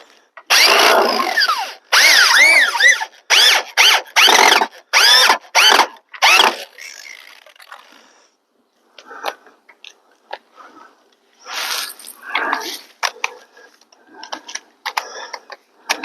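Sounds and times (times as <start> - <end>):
power drill driving screws: 0.5 - 7.5.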